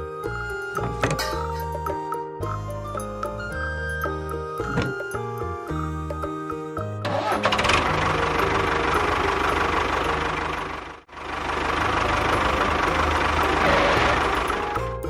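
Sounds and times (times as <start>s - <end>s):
engine knocking rhythmically: 7.0s - 15.0s.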